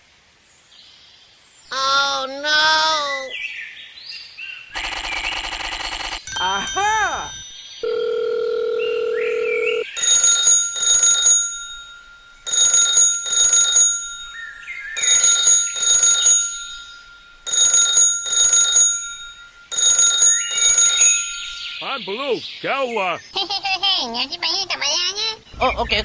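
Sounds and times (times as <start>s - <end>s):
alarm ringing in short rings: 6.2s - 21.9s.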